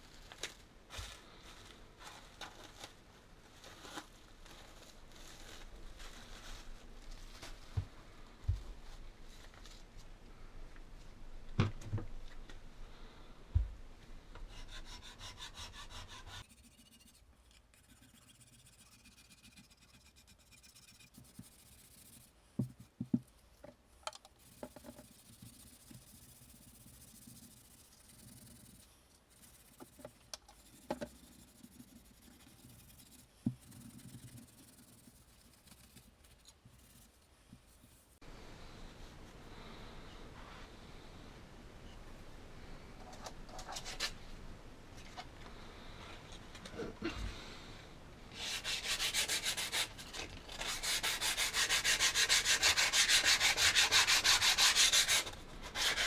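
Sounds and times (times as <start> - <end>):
hand scraping on gun parts: 16.4 - 38.2.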